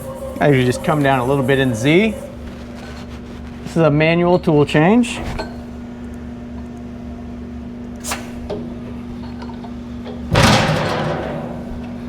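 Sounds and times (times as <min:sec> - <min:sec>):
machine humming: 0:00.0 - 0:03.8.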